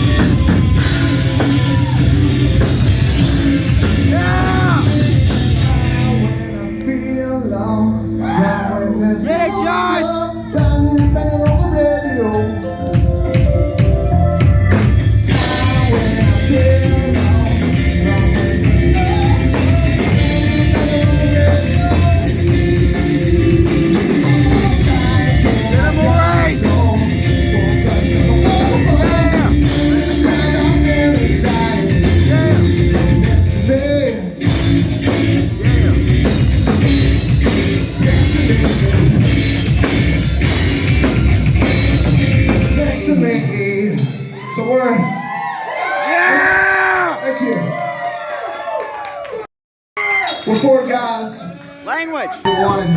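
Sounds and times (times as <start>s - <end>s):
guitar: 0.0s - 45.3s
live rock band: 0.0s - 45.4s
drums: 0.0s - 47.2s, 50.0s - 51.4s
person singing: 3.8s - 34.7s, 35.4s - 40.6s, 52.4s - 52.9s.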